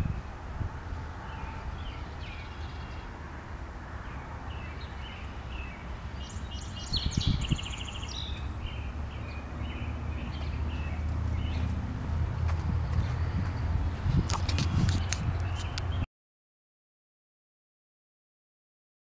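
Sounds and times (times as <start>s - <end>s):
songbirds chirping: 0.0s - 16.1s
bird trilling song: 1.3s - 3.1s, 4.0s - 11.7s, 12.8s - 16.0s.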